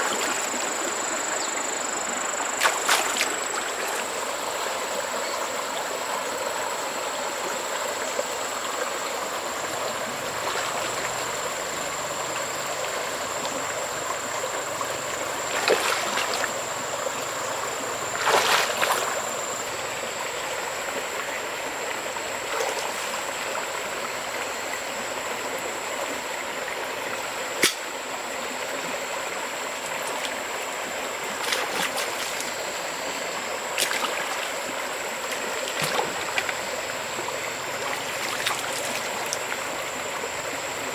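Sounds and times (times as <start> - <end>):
stream water running: 0.0 - 40.9
sharp click: 27.6 - 27.9.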